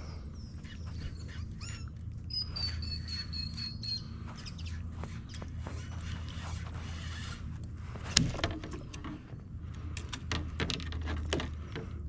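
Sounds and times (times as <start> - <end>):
thin high bird whistle: 0.0 - 5.4.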